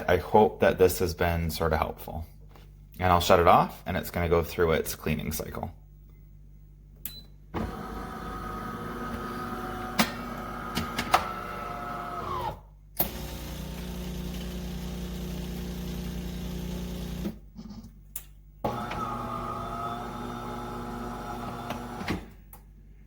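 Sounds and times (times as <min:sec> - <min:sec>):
espresso machine humming: 0:07.6 - 0:17.3, 0:18.7 - 0:22.0.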